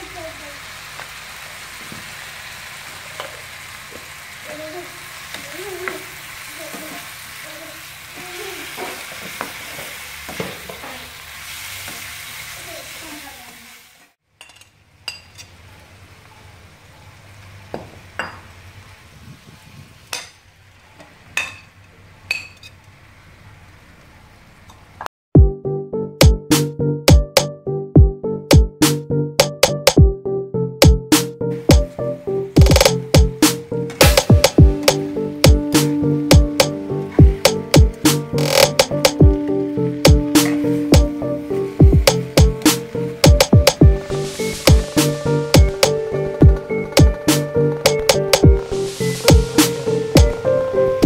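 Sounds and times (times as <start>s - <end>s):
food sizzling in oil: 0.0s - 14.2s, 39.3s - 43.2s, 43.9s - 47.8s, 48.6s - 51.0s.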